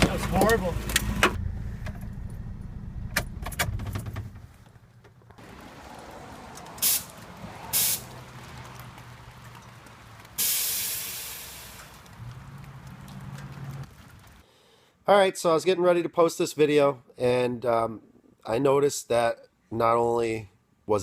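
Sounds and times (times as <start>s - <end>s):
pickup engine running: 0.0s - 14.4s
air hiss: 6.8s - 7.1s, 7.7s - 8.1s, 10.4s - 11.9s.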